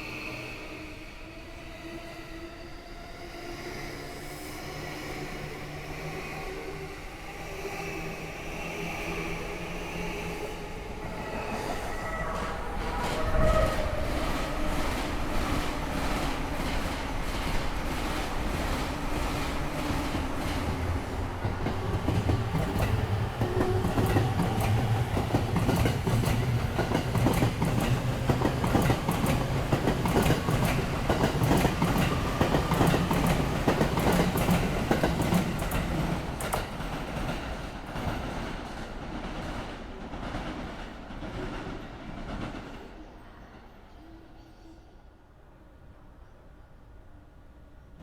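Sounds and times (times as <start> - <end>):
train rumble: 8.8 - 43.7.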